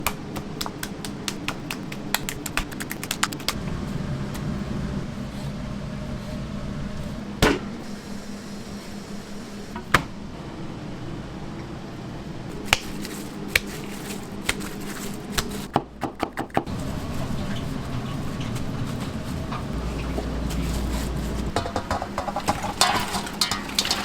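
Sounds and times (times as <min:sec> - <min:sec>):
steady hum: 0:00.0 - 0:15.7, 0:16.7 - 0:24.0.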